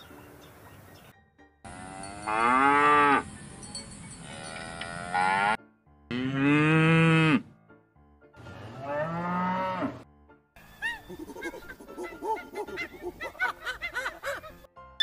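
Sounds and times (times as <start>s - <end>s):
cattle mooing: 4.3s - 7.4s, 8.5s - 10.0s.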